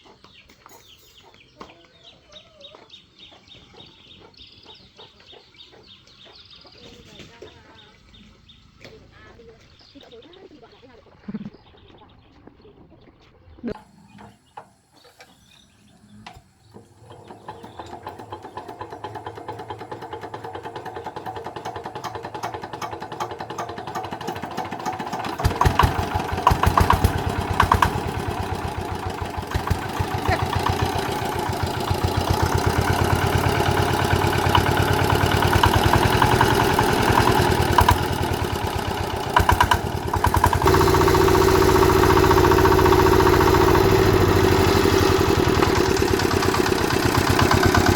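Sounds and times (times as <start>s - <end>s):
diesel engine chugging: 16.6s - 47.9s.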